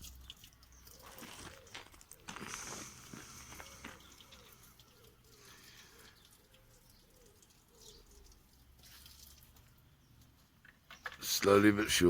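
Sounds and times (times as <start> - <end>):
bird cooing: 1.0 - 8.4.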